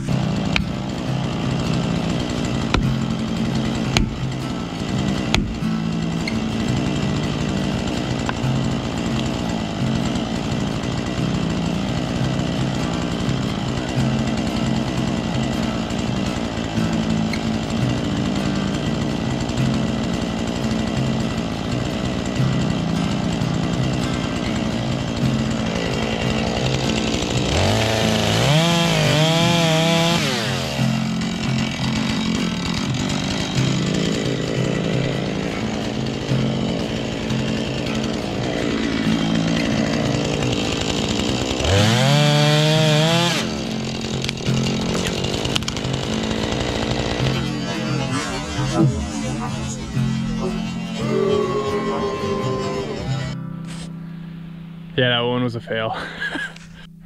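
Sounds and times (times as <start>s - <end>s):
chainsaw cutting: 0.0s - 54.9s, 55.9s - 56.9s.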